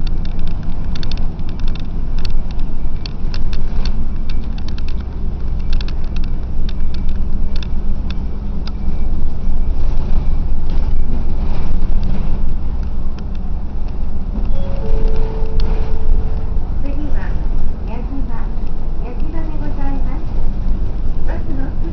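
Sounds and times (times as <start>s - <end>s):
light clicks and rattles: 0.0s - 8.8s
bus engine rumbling: 0.0s - 21.9s.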